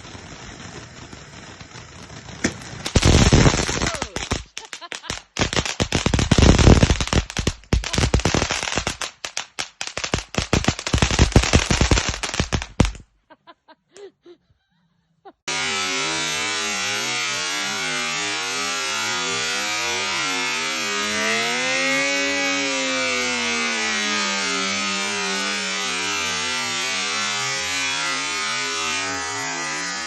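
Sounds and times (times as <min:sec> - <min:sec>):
firework barrage of bangs: 0:00.0 - 0:13.1, 0:15.5 - 0:30.0
loud steady wavering sound: 0:15.5 - 0:30.0.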